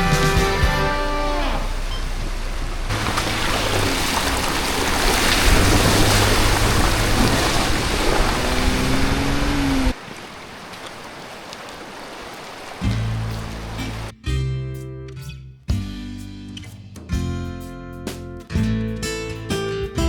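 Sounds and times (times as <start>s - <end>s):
background music: 0.0s - 1.8s
rushing water: 0.0s - 14.1s.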